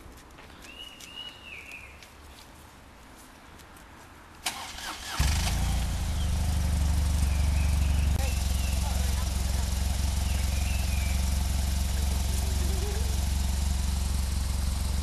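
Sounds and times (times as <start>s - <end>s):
motorcycle starter turning: 4.4s - 15.0s
motorcycle engine idling: 5.0s - 15.0s.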